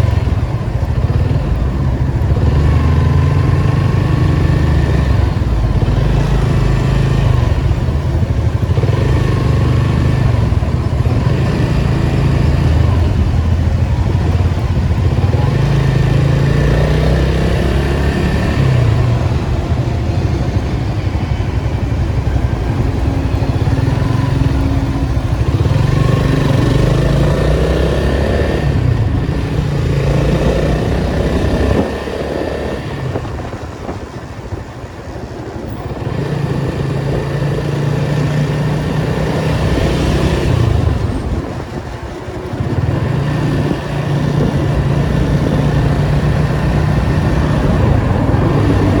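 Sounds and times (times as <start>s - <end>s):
car engine revving through gears: 23.3s - 33.4s, 42.6s - 49.0s.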